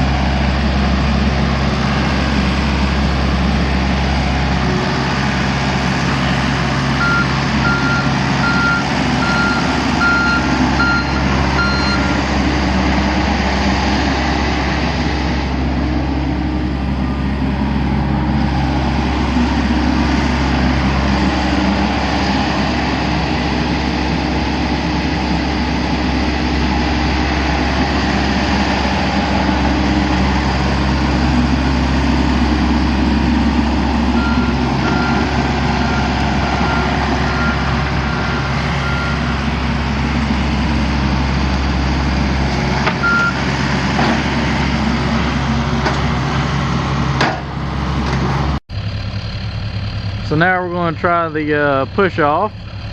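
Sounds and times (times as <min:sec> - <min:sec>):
diesel engine running: 0:00.0 - 0:52.9
reversing alarm beeping: 0:06.3 - 0:12.3, 0:33.1 - 0:41.2, 0:43.0 - 0:43.5.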